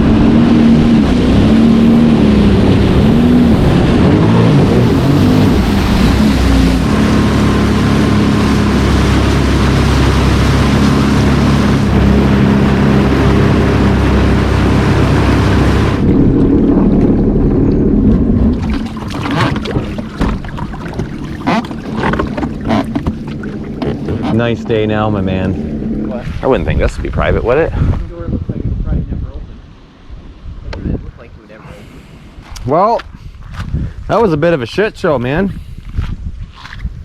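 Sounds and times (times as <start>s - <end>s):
water splashing against hull: 0.0s - 28.1s
watercraft engine: 0.0s - 33.0s
rush of spray and wind: 0.0s - 37.0s.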